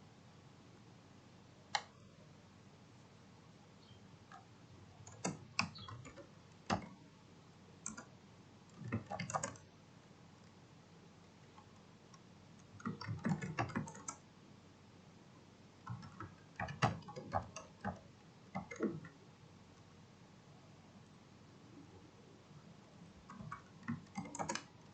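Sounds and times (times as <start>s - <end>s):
typing on computer keyboard: 5.0s - 7.0s, 7.8s - 8.1s, 8.7s - 9.7s, 12.6s - 14.2s, 15.8s - 19.2s, 23.2s - 24.8s.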